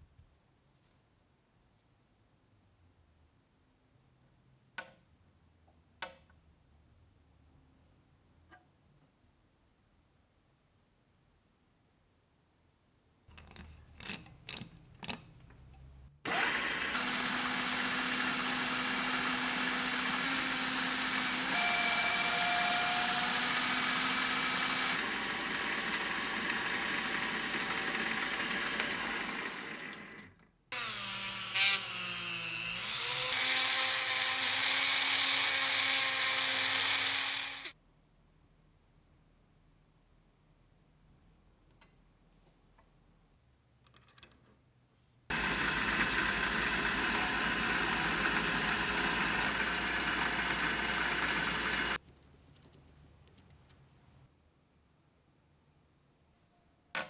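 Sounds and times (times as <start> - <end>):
power tool running: 13.4 - 37.7, 45.3 - 52.1.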